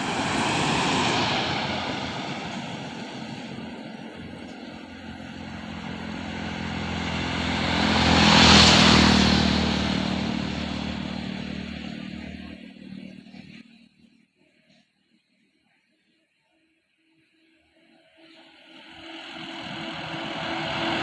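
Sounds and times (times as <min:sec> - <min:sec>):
truck passing by: 0:00.0 - 0:13.8, 0:19.0 - 0:21.0.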